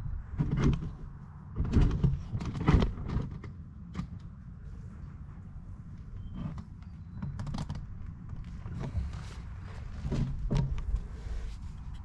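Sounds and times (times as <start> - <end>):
equipment knocks and clunks: 10.0 - 10.9.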